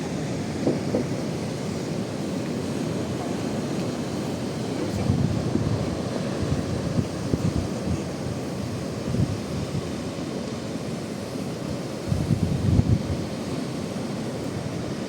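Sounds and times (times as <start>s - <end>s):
wind buffeting microphone: 0.2s - 10.1s, 12.0s - 13.3s.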